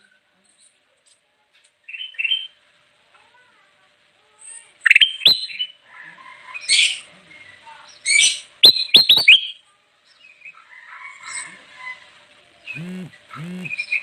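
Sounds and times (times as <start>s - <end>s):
bird chirping and whistling: 8.6s - 9.5s.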